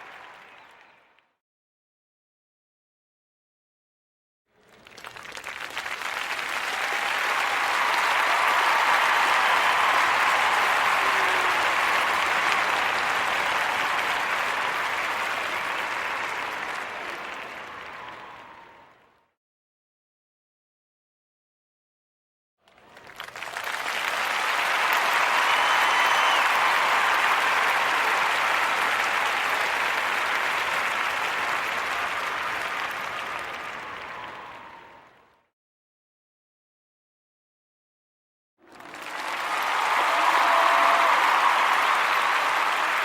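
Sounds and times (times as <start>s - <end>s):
crowd applauding: 0.0s - 1.2s, 4.6s - 19.0s, 22.7s - 35.1s, 38.6s - 43.0s.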